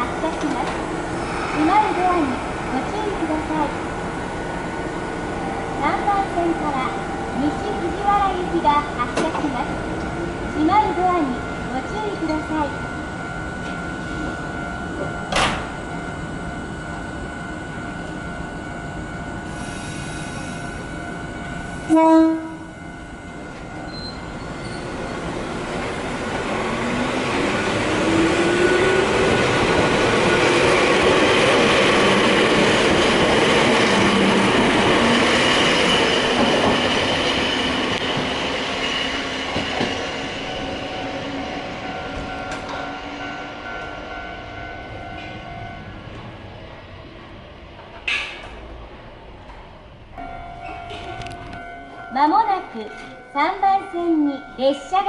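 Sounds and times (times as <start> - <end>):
electric train motor whine: 12.3 - 48.1
train horn blast: 21.9 - 22.9.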